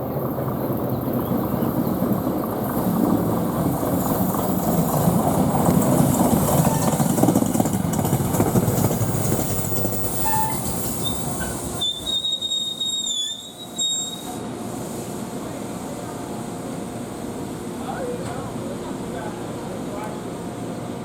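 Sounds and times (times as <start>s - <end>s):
train rumbling on rails: 0.0s - 21.0s
steel wheels squealing: 6.5s - 7.2s, 9.0s - 14.4s.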